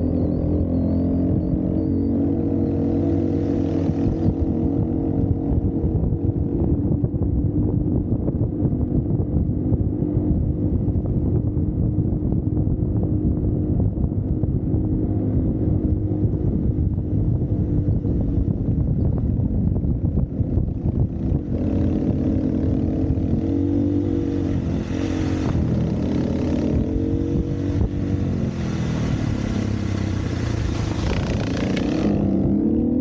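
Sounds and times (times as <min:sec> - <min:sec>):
wind buffeting microphone: 0:00.0 - 0:33.0
dirt bike engine running: 0:15.7 - 0:33.0.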